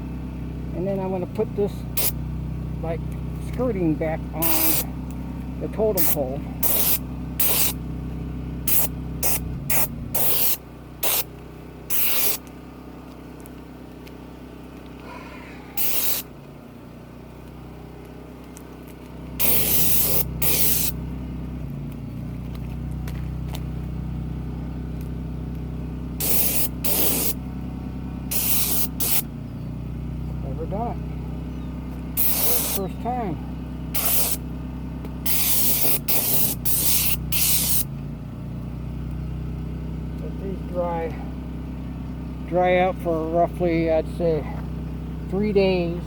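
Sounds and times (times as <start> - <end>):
steady low hum: 0.0 - 46.0
oil spray hissing bursts: 2.0 - 2.2, 4.4 - 5.0, 6.0 - 7.9, 8.6 - 12.5, 15.7 - 16.4, 19.4 - 21.0, 26.2 - 27.5, 28.3 - 29.4, 32.2 - 33.0, 33.9 - 34.5, 35.2 - 38.0.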